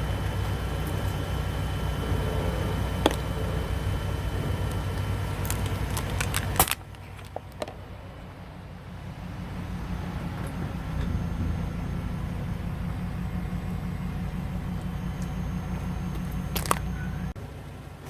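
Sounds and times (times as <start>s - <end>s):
car engine humming: 0.0s - 18.0s
crunching under a tyre: 0.3s - 7.9s, 14.7s - 17.3s.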